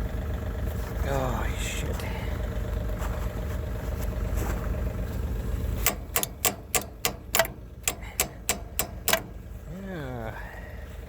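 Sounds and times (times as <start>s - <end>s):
tractor engine rumbling: 0.0s - 11.0s
sharp evenly spaced ticks: 5.8s - 9.4s.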